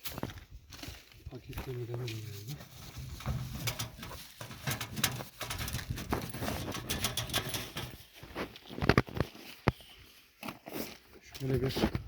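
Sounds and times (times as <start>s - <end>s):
hands handling camping stove: 2.4s - 9.8s.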